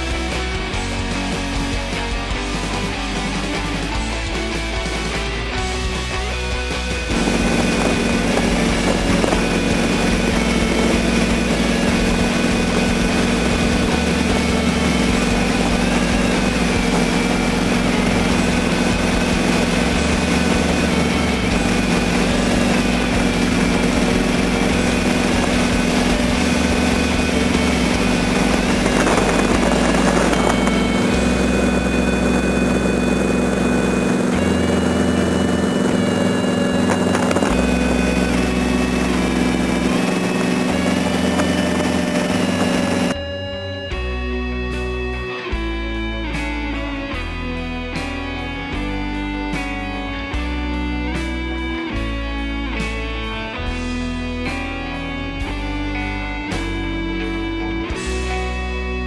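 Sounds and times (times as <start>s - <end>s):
car engine cruising: 6.6s - 43.2s
wind noise on microphone: 7.1s - 43.2s.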